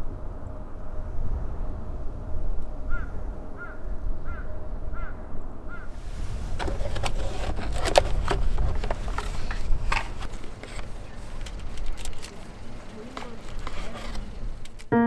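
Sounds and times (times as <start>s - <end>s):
rustling with clicks and crackles: 6.0s - 14.9s.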